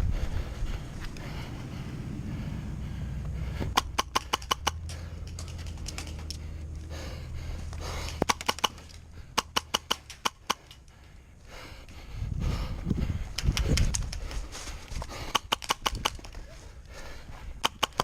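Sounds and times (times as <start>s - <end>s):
wind rumble on microphone: 0.0s - 3.8s, 11.8s - 17.6s.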